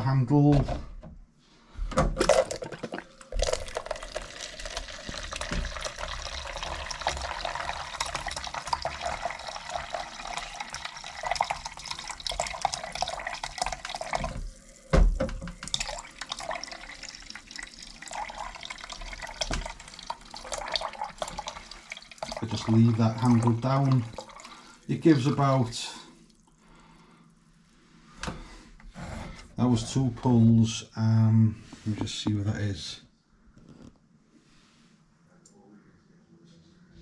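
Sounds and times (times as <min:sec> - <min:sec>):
liquid gushing into container: 0:02.2 - 0:26.5.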